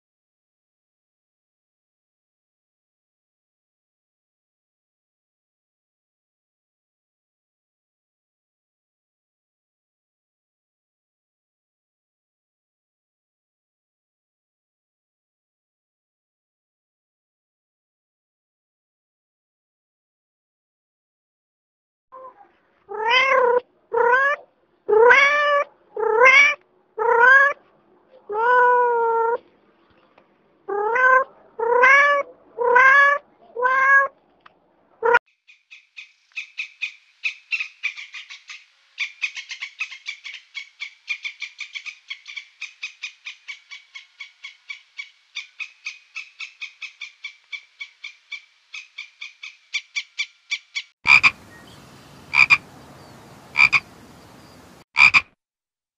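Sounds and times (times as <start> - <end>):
meow-like calls: 22.2 - 27.6, 28.3 - 29.4, 30.7 - 34.1
squirrel clicking chatter: 51.1 - 51.3, 52.3 - 52.6, 53.6 - 53.8, 55.0 - 55.2.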